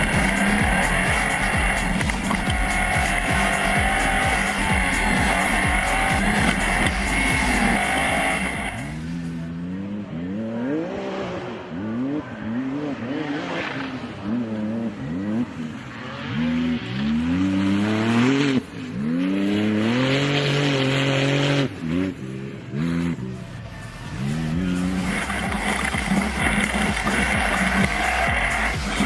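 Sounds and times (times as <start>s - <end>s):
race car engine revving: 0.0s - 29.0s.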